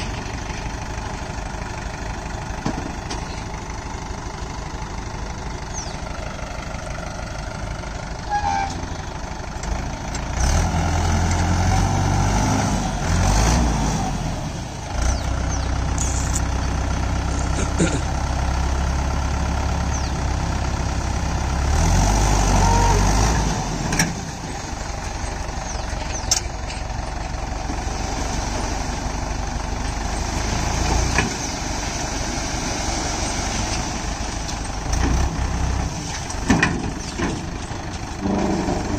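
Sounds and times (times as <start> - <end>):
heavy diesel engine revving: 8.2 - 38.9.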